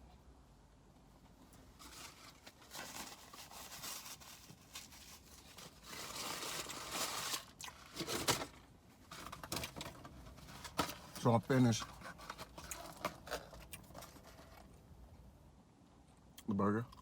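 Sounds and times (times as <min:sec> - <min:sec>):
paper wrappers crinkling: 0:01.8 - 0:14.7.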